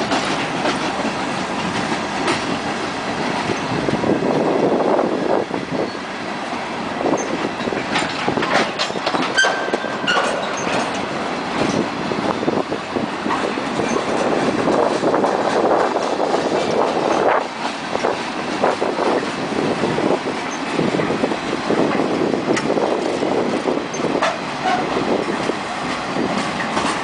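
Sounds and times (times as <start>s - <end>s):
train wheels clattering over rails: 0.0s - 27.0s
high wheel squeal: 9.0s - 10.9s.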